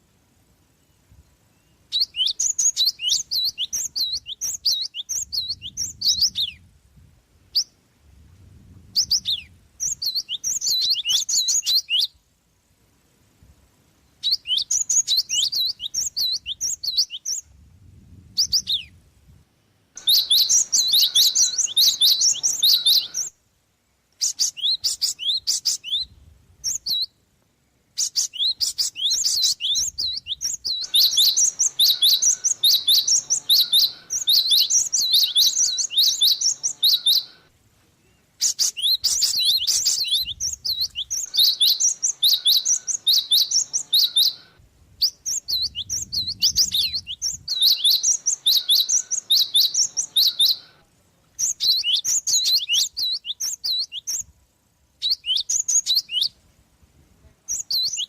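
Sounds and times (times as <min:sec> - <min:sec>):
sparrow chirping: 0:01.6 - 0:06.6, 0:09.0 - 0:12.1, 0:14.2 - 0:17.4, 0:18.4 - 0:19.0, 0:20.0 - 0:23.4, 0:24.2 - 0:27.1, 0:28.0 - 0:37.5, 0:38.1 - 0:50.8, 0:51.4 - 0:54.3, 0:55.0 - 0:56.4.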